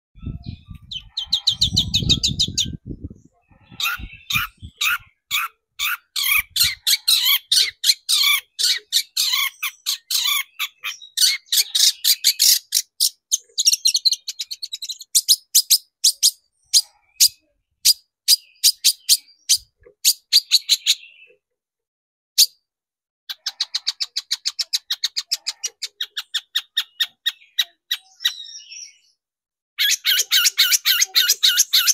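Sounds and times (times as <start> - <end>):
bird chattering song: 0.2 - 21.4, 23.3 - 29.2, 29.8 - 31.9.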